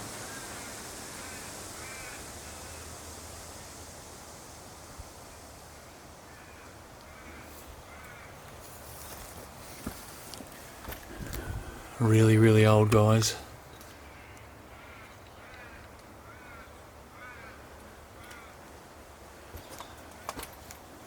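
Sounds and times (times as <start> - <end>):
crow cawing: 1.2 - 2.8, 6.3 - 8.4, 14.0 - 18.6
steady low rumble: 11.1 - 13.5.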